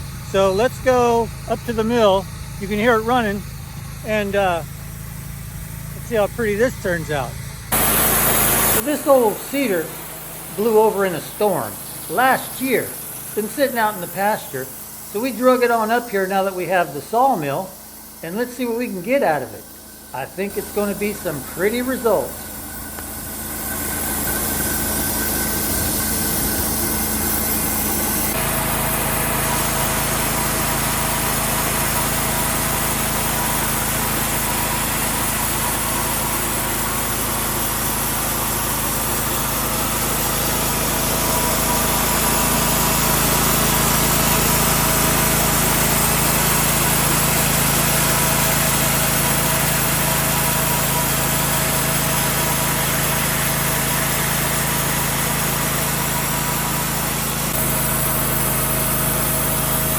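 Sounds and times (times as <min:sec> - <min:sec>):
sawmill sawing a log: 0:00.0 - 0:59.9.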